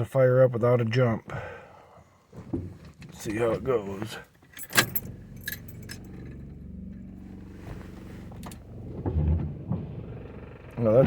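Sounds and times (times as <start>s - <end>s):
keys jangling: 4.5s - 6.4s
wiper motor humming: 4.9s - 11.0s.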